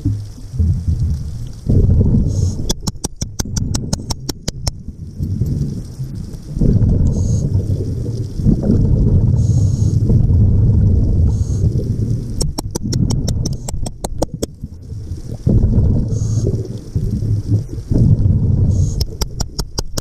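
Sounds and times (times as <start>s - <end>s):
exhaled bubbles gushing: 0.0s - 20.0s
regulator hissing inhales: 9.4s - 10.0s.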